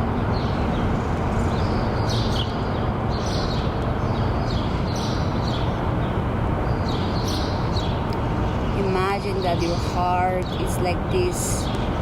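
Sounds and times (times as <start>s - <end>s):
birds chirping: 0.0s - 12.0s
loud low background noise: 0.0s - 12.0s.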